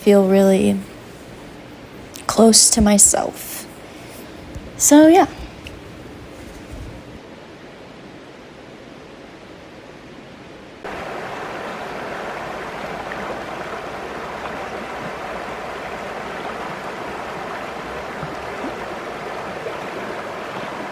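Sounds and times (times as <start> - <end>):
creek water flowing over rocks: 10.9 - 20.9.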